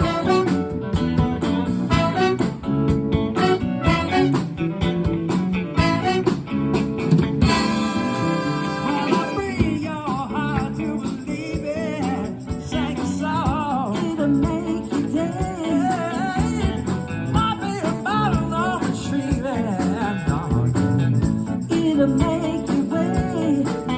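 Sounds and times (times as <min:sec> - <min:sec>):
band playing with guitar: 0:00.0 - 0:23.9
person singing with vibrato: 0:07.6 - 0:16.8, 0:21.7 - 0:23.9.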